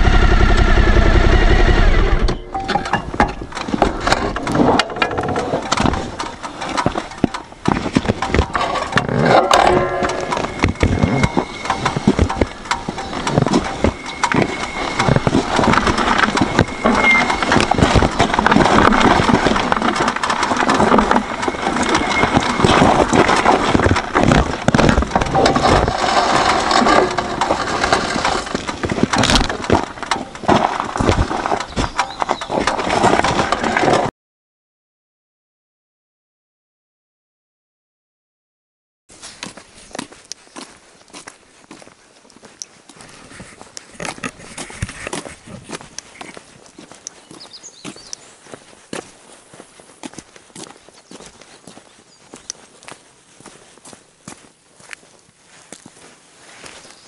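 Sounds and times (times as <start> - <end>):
motorcycle engine running: 0.0 - 2.6, 8.0 - 34.0
clatter of knocks and clicks: 2.5 - 34.1.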